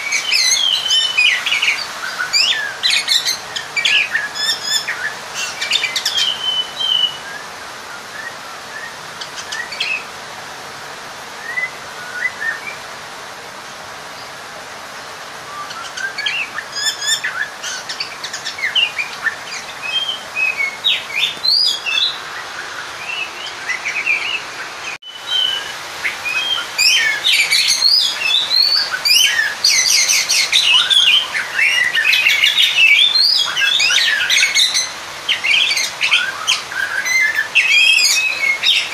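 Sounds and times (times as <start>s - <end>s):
bird singing whistles and chatter: 0.0s - 10.0s, 11.4s - 12.8s, 15.5s - 38.9s.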